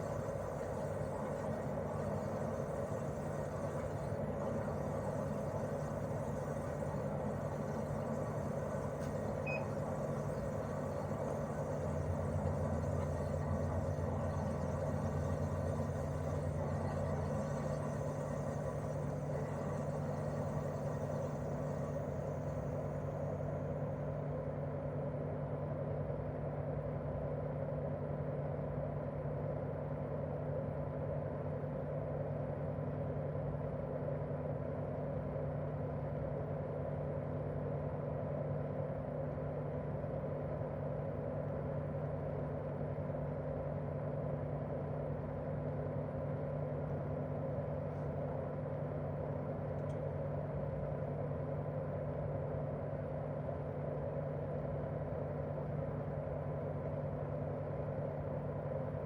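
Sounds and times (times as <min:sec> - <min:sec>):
compressor tones: 0:00.0 - 0:22.9.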